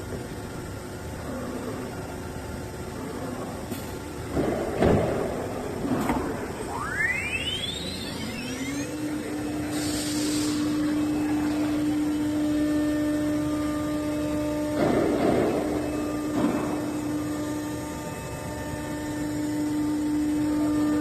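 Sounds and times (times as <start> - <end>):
electric motor humming: 6.1 - 21.0.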